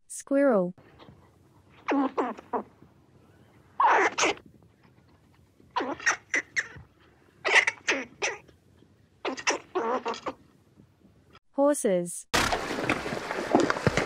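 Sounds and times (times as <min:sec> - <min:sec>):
squirrel chattering calls: 0:03.8 - 0:04.4, 0:05.8 - 0:06.8, 0:07.4 - 0:08.4.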